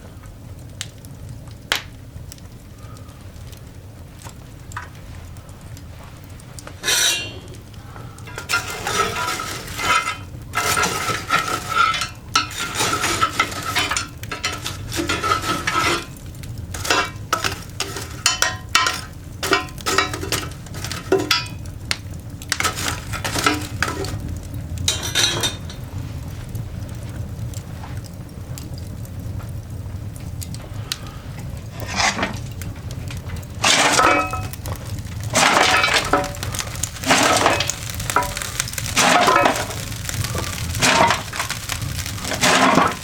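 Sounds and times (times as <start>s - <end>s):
fire crackling: 0.0s - 43.0s
metal scraping and clattering: 6.8s - 7.6s, 8.2s - 21.6s, 22.5s - 25.8s, 31.8s - 32.4s, 33.3s - 43.0s.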